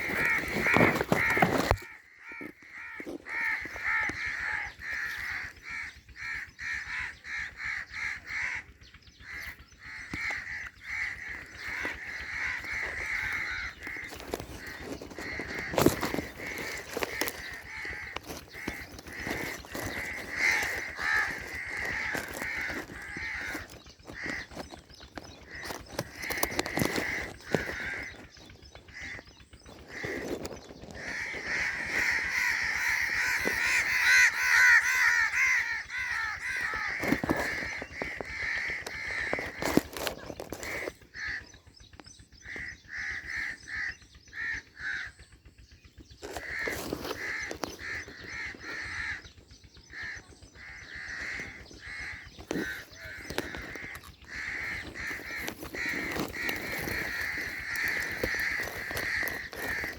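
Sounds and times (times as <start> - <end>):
mynas calling harshly: 9.8 - 40.0, 49.9 - 59.9.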